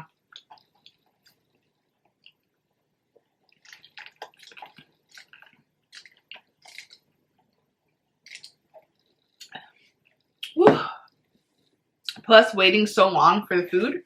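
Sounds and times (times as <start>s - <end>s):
close-miked chewing: 0.0s - 10.4s.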